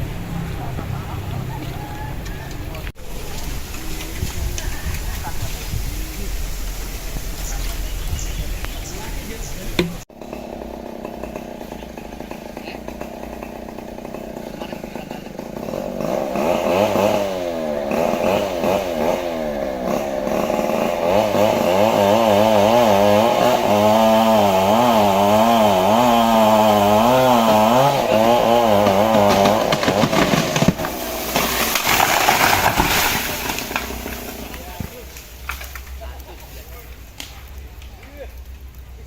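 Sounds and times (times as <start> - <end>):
chainsaw cutting wood: 9.8 - 36.0.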